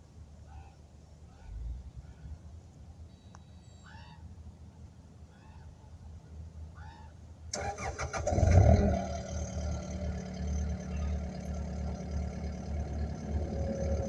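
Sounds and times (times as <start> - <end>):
diesel engine starting and running: 7.5 - 14.0
low rumble: 8.8 - 14.0.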